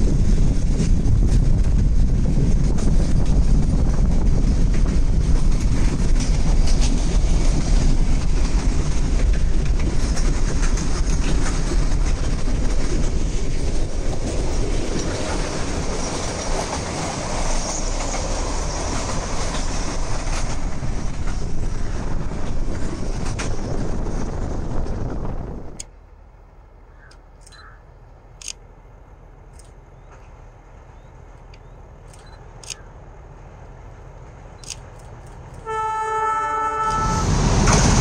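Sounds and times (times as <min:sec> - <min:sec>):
train wheels clacking on rail joints: 0:00.0 - 0:25.9, 0:31.3 - 0:32.8, 0:34.5 - 0:36.0.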